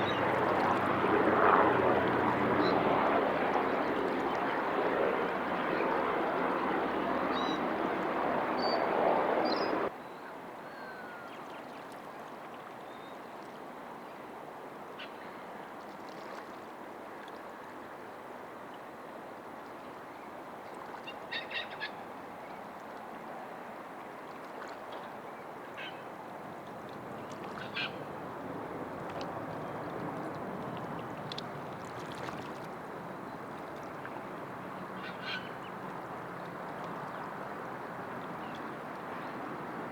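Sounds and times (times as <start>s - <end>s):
jet aircraft noise: 0.0s - 9.9s.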